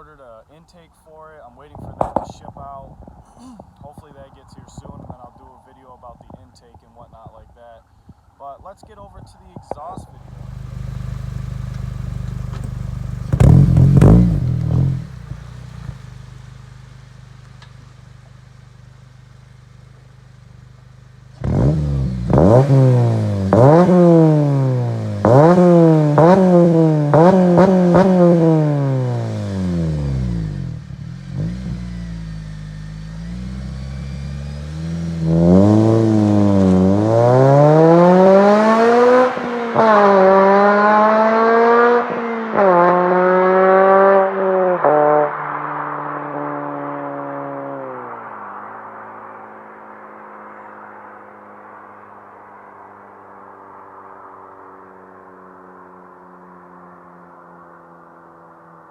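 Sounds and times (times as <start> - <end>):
car engine revving loudly: 9.7 - 17.9, 21.2 - 48.8.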